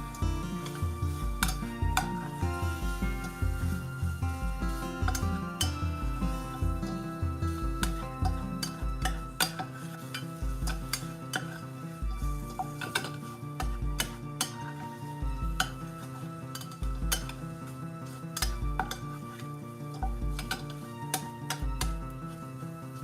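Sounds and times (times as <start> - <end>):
background music with bass: 0.0 - 23.0
metal utensil clinking in pot: 5.0 - 6.6, 7.8 - 11.7, 12.4 - 14.9, 15.5 - 17.4, 18.4 - 22.0.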